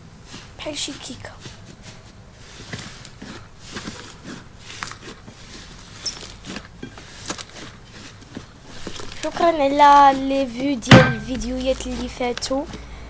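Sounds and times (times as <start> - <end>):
sticky clicks and squelches: 8.7 - 12.9.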